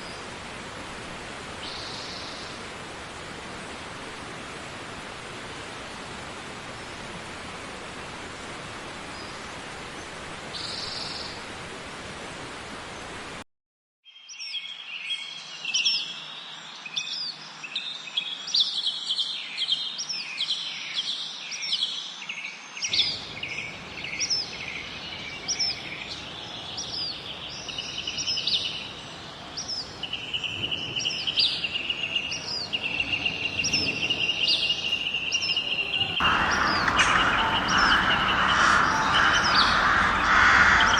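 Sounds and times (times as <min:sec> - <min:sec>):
steady hiss: 0:00.0 - 0:11.3, 0:22.9 - 0:40.9
small birds chirping: 0:22.9 - 0:40.9.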